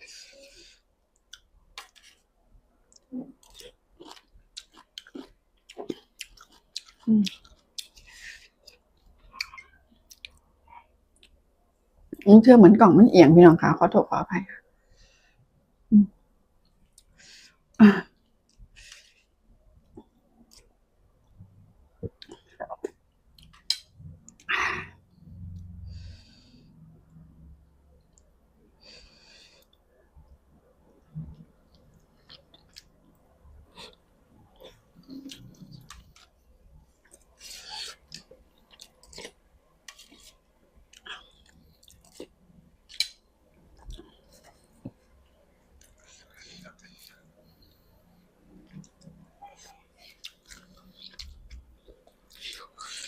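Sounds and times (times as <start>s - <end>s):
person chewing: 1.2s - 2.3s, 2.9s - 10.5s, 22.0s - 24.5s, 31.2s - 33.0s, 33.6s - 47.5s, 48.6s - 53.0s.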